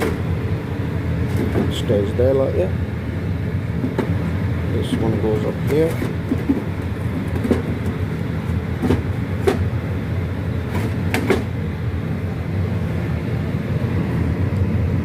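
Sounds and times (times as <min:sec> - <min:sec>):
low hum: 0:00.0 - 0:15.0
bricks knocking and clinking: 0:05.7 - 0:08.0.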